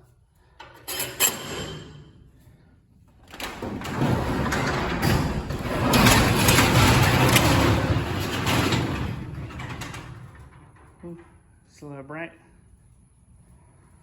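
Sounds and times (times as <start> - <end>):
garage door rattling open: 0.6 - 2.2, 3.2 - 11.3.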